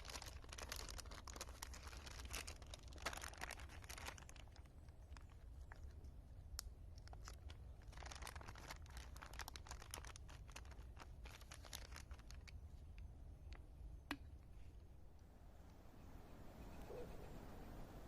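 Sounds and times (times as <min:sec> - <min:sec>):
faint crinkling and clicking: 0:00.0 - 0:13.7.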